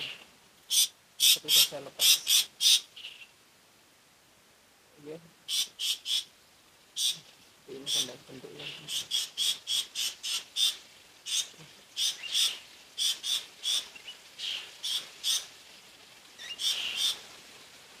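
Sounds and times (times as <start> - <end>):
bird calling with sharp notes: 5.5 - 6.3, 7.8 - 15.5, 16.4 - 17.2.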